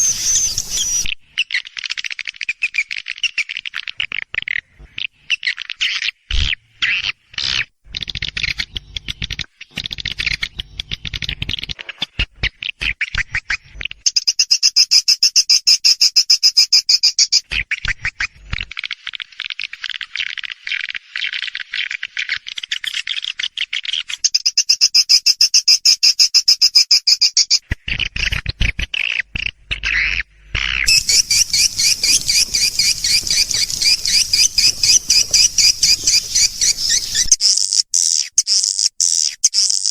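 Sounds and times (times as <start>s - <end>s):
high bird chirps and twitters: 0.0s - 4.6s, 30.8s - 39.9s.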